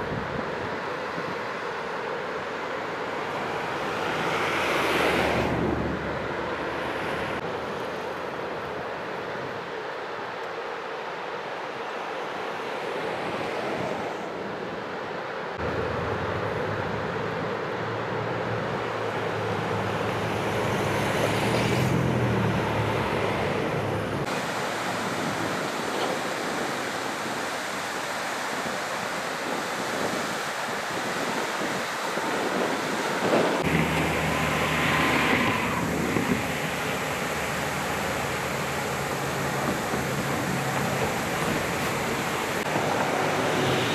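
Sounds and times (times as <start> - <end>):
floodwater rushing: 0.0 - 43.9
vehicle engine humming: 15.6 - 24.3, 33.6 - 43.9
wind on microphone: 19.9 - 43.9.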